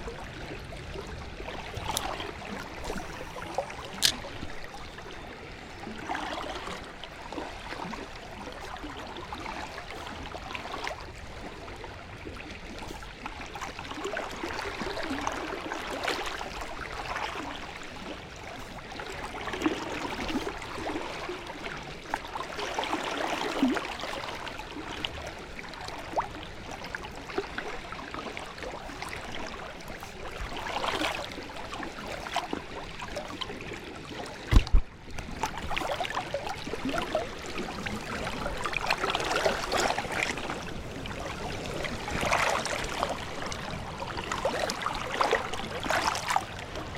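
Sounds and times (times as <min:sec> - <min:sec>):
river water gurgling: 0:00.0 - 0:46.9
small splashes and clicks: 0:01.5 - 0:04.7, 0:34.3 - 0:37.2
sharp low thump: 0:34.5 - 0:34.9.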